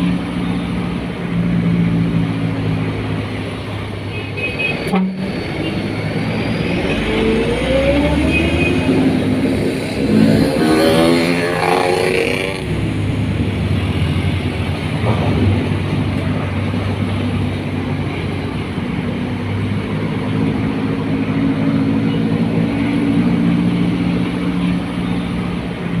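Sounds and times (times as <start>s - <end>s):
heavy truck engine droning: 4.7s - 26.0s.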